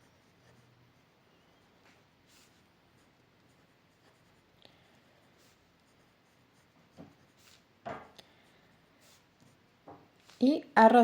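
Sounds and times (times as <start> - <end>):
pen scratching on paper: 0.0 - 1.1, 2.2 - 9.6.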